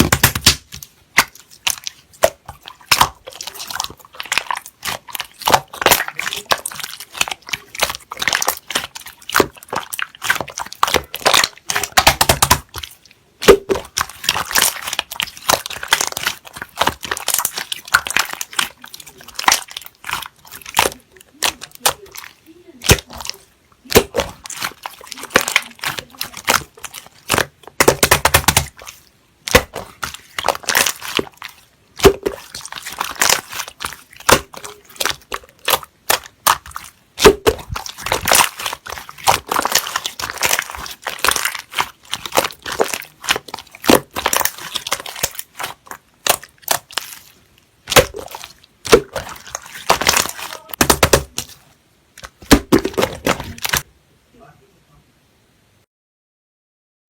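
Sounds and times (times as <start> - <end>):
slime crackling and clicking: 0.0 - 51.6, 52.2 - 53.8.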